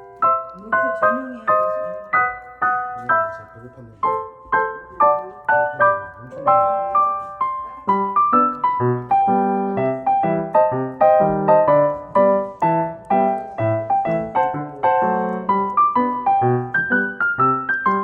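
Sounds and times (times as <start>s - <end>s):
gentle solo piano: 0.0s - 18.0s.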